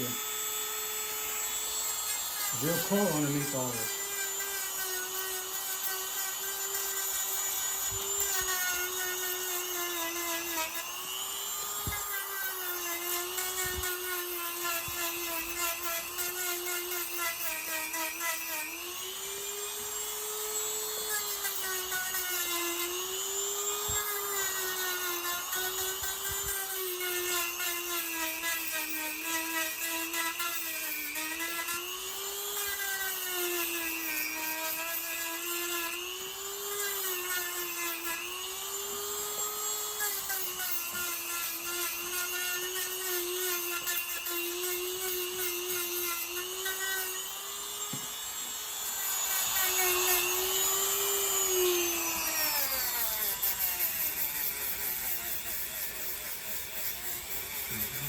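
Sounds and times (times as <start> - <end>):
electric file whining: 0.0 - 58.0.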